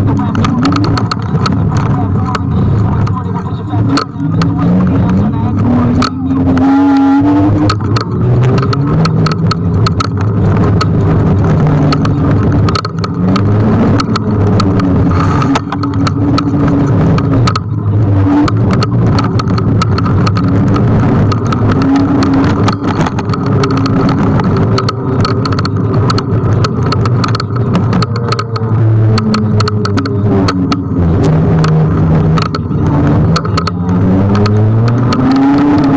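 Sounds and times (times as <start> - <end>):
electric scooter motor hum: 0.0 - 35.9
knocks and clicks from bumps: 0.0 - 35.9
traffic: 0.0 - 35.9
wind and road noise: 0.0 - 35.9.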